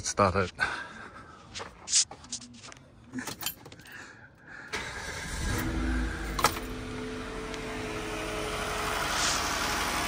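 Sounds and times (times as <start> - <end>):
car engine starting and idling: 4.6 - 10.0.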